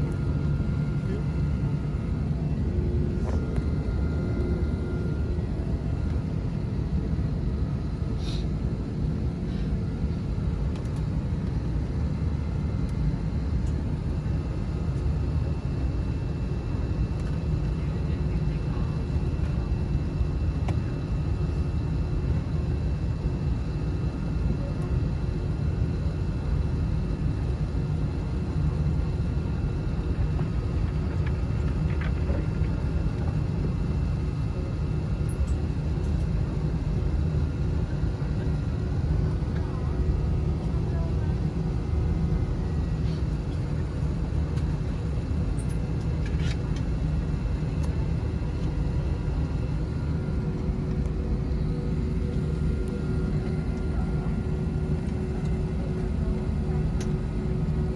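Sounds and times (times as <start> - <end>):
faint whine: 0.0 - 9.8
jet engines idling: 0.0 - 22.3, 26.3 - 57.9.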